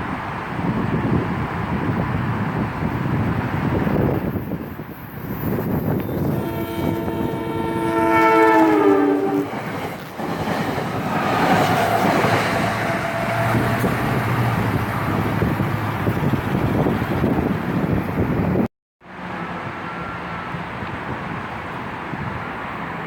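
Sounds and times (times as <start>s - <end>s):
train rumble and rail noise: 0.0s - 23.0s
train horn: 6.0s - 9.6s, 11.2s - 15.2s.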